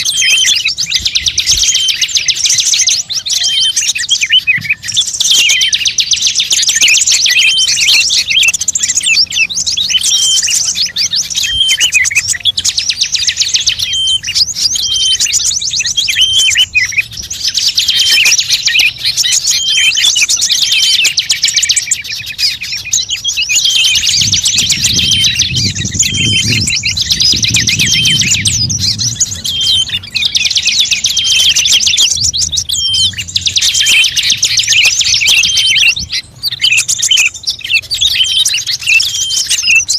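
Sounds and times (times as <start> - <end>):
songbird chattering trills: 0.0 - 39.9
low rumble: 24.1 - 34.6.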